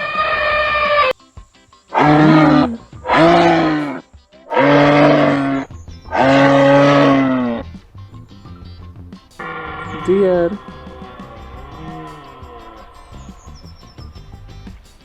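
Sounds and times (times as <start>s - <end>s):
large animal calling: 0.0s - 1.2s, 1.9s - 7.7s, 9.4s - 14.2s.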